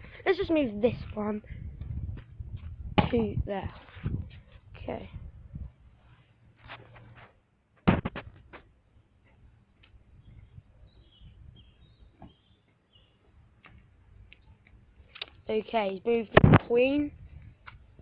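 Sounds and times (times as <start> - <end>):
sharp knocks: 7.8 - 8.6
faint bird chirps: 10.1 - 13.3.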